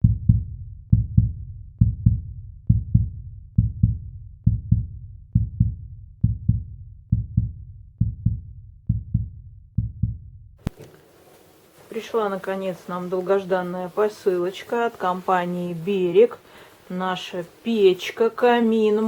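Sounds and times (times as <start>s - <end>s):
heartbeat thumps: 0.0s - 10.9s.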